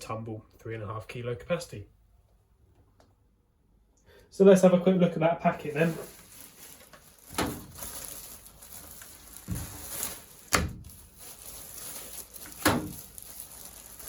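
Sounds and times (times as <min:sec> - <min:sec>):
packet rustling: 0:05.5 - 0:14.0.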